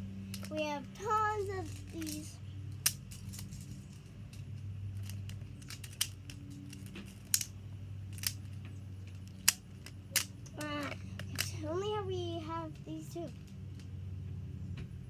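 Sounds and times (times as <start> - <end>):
steady low hum: 0.0 - 15.0
building pieces clicking: 1.6 - 4.4, 5.0 - 7.5, 9.1 - 11.5.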